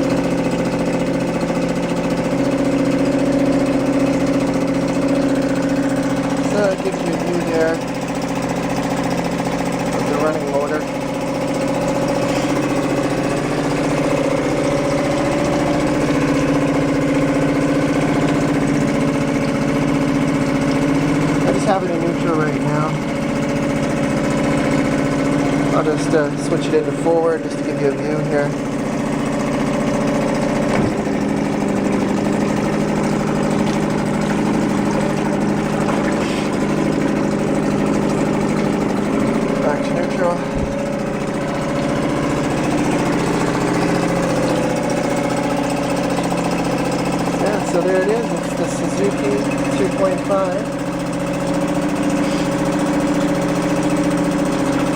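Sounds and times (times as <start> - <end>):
outboard motor idling: 0.0 - 54.9
gear shift clunk: 30.4 - 31.5.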